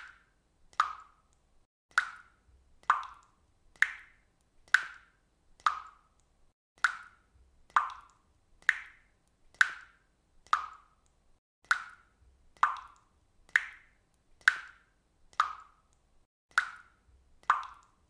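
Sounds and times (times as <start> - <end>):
water dripping from a faucet: 0.0 - 18.0.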